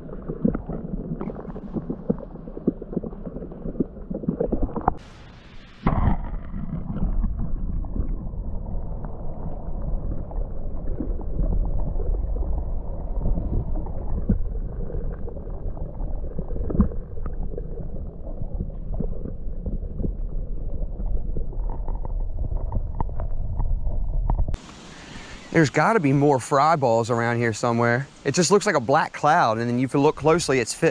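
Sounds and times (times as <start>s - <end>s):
underwater rumble and gurgling: 0.0s - 24.6s.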